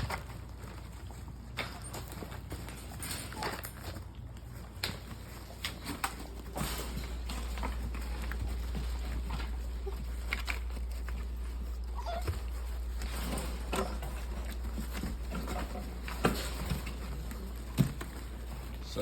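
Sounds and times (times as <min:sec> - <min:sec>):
scuffling: 0:00.0 - 0:19.0
puppies whining and yipping: 0:06.7 - 0:18.2.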